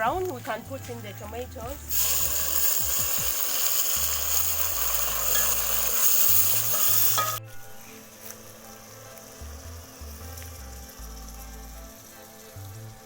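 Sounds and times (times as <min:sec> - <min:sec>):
hot oil sizzling in a pan: 0:01.8 - 0:07.4, 0:08.6 - 0:13.0.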